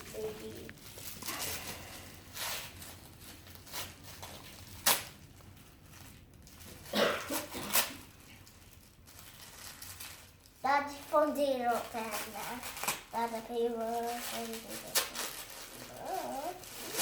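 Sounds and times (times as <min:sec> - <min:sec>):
paper and packaging rustling: 0:00.0 - 0:17.0.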